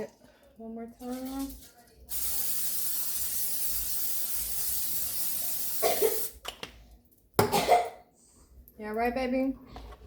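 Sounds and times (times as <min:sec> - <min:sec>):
person coughing: 0:05.8 - 0:06.3, 0:07.4 - 0:08.1.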